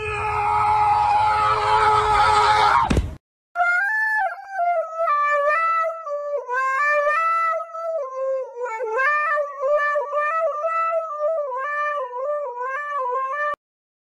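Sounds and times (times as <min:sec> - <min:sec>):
dog howling into a microphone: 0:00.0 - 0:02.9.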